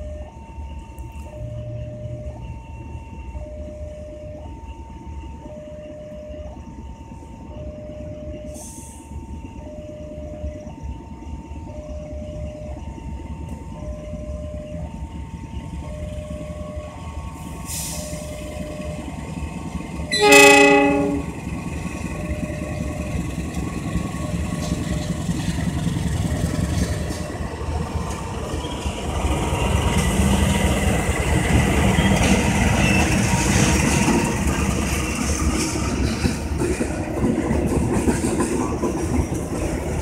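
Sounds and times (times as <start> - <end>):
two-tone level-crossing alarm: 0.0 - 19.4, 20.0 - 27.4
passenger train rumbling past: 0.0 - 40.0
train horn blast: 20.1 - 21.5.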